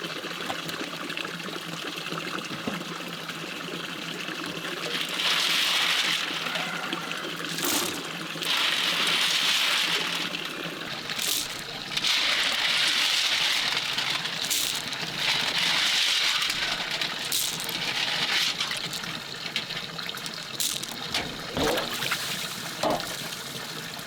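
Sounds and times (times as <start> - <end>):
water splashes: 4.9 - 24.0
water rushing: 10.1 - 24.0.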